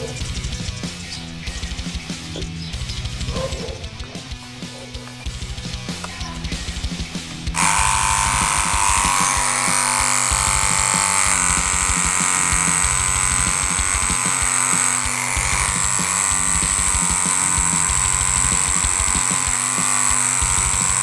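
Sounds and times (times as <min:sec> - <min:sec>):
background music with fast drumming: 0:00.0 - 0:21.0
tattoo machine buzzing: 0:07.5 - 0:21.0.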